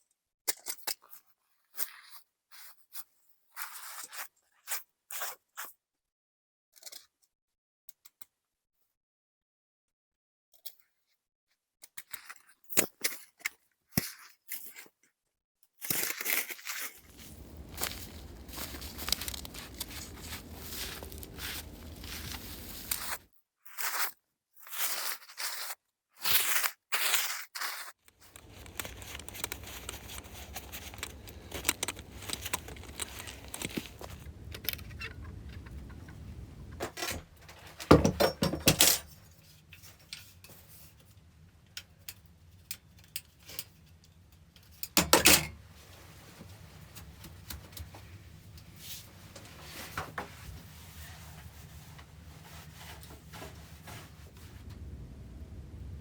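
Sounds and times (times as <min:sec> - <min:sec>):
rustling: 0:17.0 - 0:23.2, 0:28.2 - 0:39.2, 0:45.7 - 0:56.0
scraping: 0:17.0 - 0:23.2, 0:28.2 - 0:39.1
small clinks: 0:28.2 - 0:36.6.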